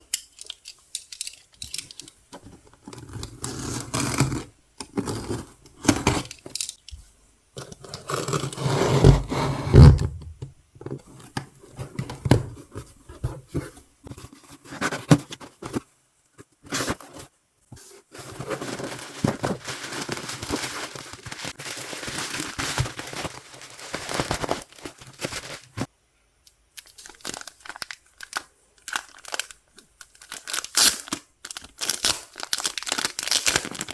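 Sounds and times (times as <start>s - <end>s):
plastic wrapping tearing and crinkling: 18.5s - 25.9s, 26.8s - 33.9s.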